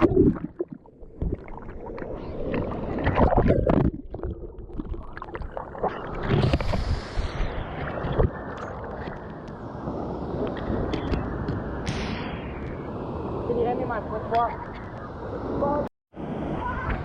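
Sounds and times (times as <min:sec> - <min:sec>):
water gurgling: 0:00.0 - 0:09.3
water sloshing and splashing: 0:00.0 - 0:11.7.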